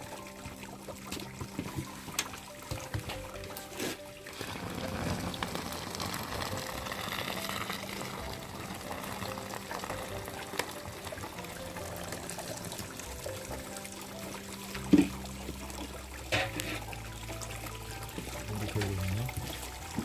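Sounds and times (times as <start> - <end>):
background music: 0.0 - 20.0
liquid pouring: 0.0 - 20.0.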